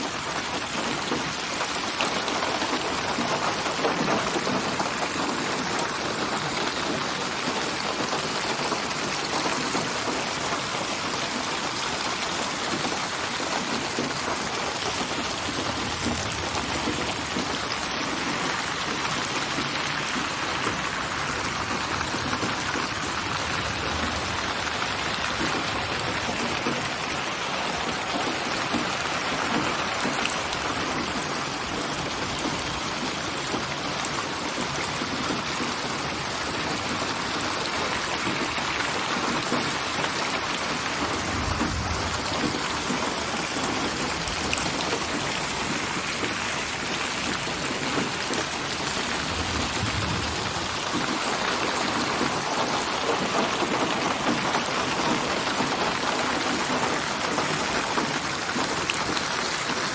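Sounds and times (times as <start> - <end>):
rain pattering: 0.0 - 59.9
distant thunder rumbles: 40.8 - 46.3, 47.9 - 53.2.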